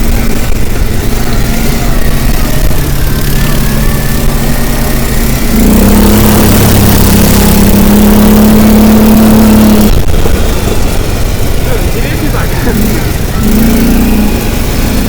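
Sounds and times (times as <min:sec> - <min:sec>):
vehicle engine running under load: 0:00.0 - 0:15.0.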